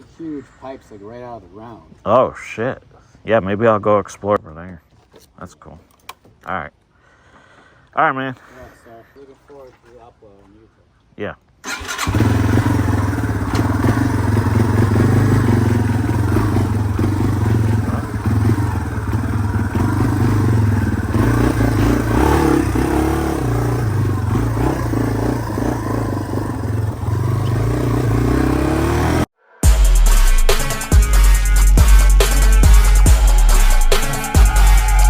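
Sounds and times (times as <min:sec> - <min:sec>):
motorcycle engine idling: 0:11.7 - 0:29.3.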